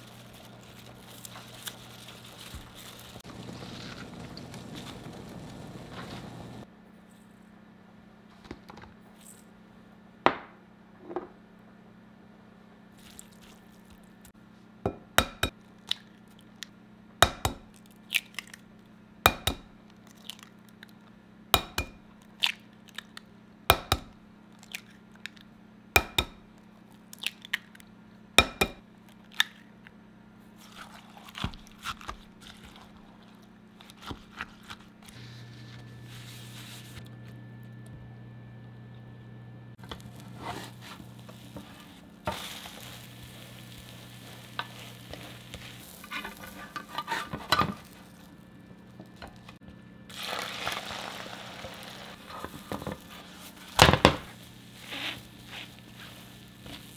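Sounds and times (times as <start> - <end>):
low hum: 0.0 - 7.6, 35.0 - 47.0.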